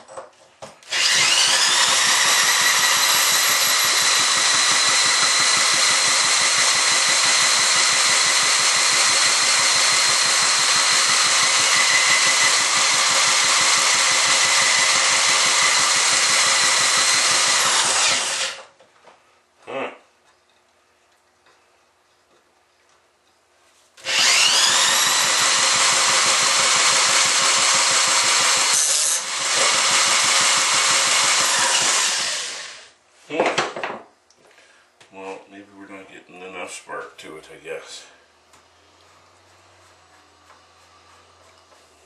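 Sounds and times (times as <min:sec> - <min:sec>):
electric motor whining: 0:00.9 - 0:18.7, 0:24.0 - 0:32.8.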